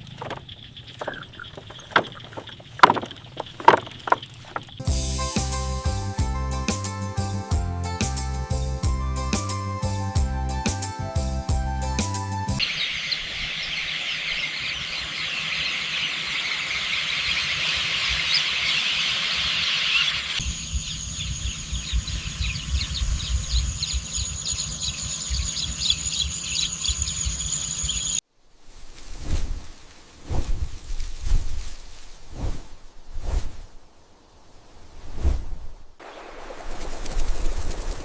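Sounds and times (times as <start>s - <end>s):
insects chirping: 0.0s - 4.9s, 12.6s - 28.2s, 36.0s - 38.0s
birds chirping: 0.0s - 5.0s, 12.6s - 28.2s
high insect whine: 12.6s - 28.2s.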